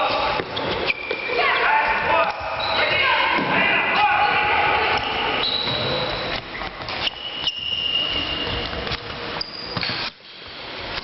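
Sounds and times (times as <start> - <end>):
high steady squeaks: 4.9 - 10.6.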